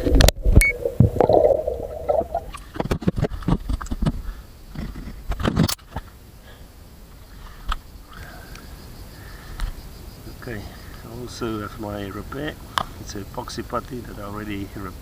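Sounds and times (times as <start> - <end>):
water noise: 0.0 - 3.3
faint steady noise: 0.0 - 15.0
knocks clicks and scrapes: 4.8 - 5.9.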